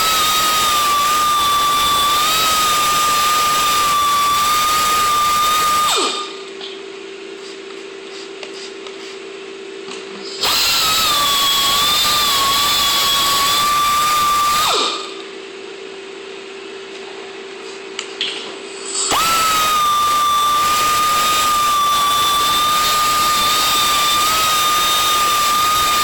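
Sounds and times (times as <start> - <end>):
electric drill running: 0.0 - 6.4, 10.4 - 15.2, 19.0 - 26.0.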